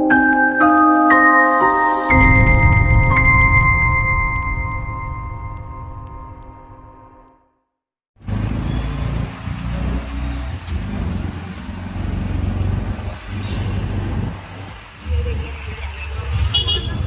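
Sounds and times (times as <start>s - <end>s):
music: 0.0s - 7.7s
street traffic rumble: 8.2s - 17.0s.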